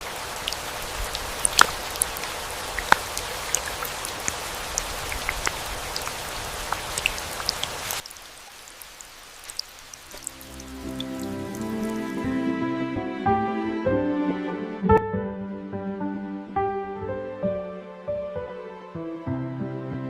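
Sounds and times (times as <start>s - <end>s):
raindrops striking close by: 0.0s - 12.2s
rain falling: 0.0s - 12.4s.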